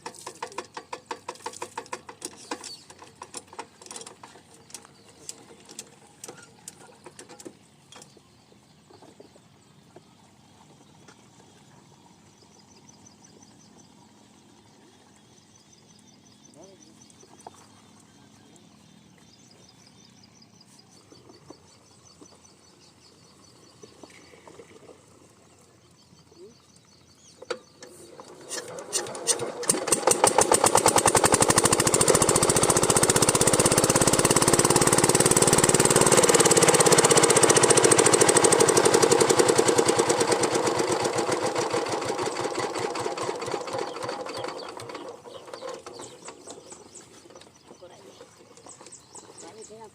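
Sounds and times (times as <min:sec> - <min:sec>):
diesel engine running: 0:29.2 - 0:48.0.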